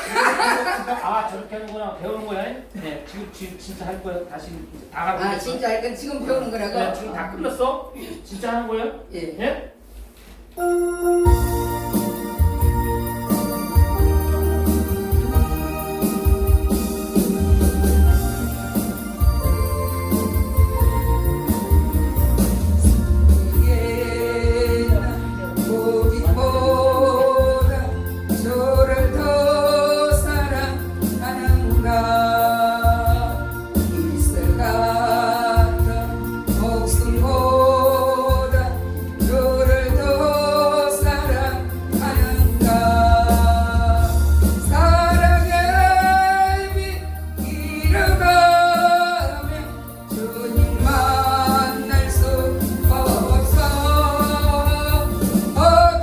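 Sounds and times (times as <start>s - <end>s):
person singing with vibrato: 10.6s - 56.0s
heavy bass: 11.3s - 56.0s.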